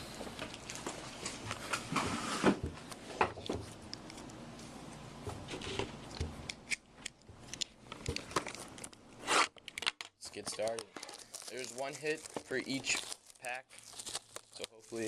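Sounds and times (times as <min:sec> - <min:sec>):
shrink wrap and cardboard rustling: 0:08.0 - 0:09.6, 0:10.3 - 0:15.0.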